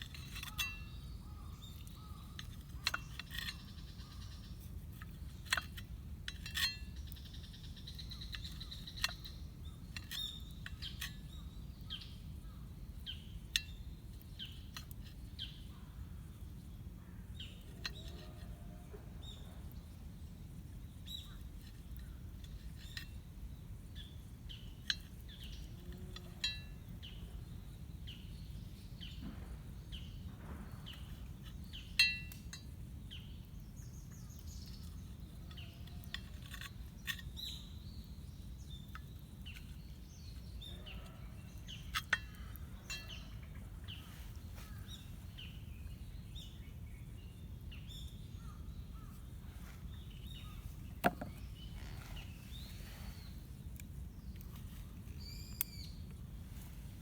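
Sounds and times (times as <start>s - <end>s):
birds chirping: 20.9s - 57.0s.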